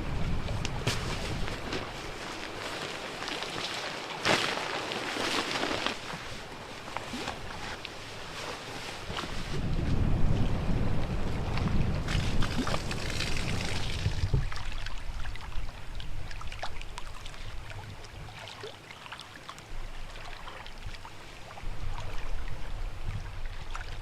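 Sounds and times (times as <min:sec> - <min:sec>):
wind buffeting microphone: 0:00.0 - 0:02.3, 0:09.0 - 0:16.6
small water splashes: 0:00.0 - 0:09.5, 0:12.1 - 0:22.5
lake waves lapping: 0:00.0 - 0:10.6, 0:11.3 - 0:24.0.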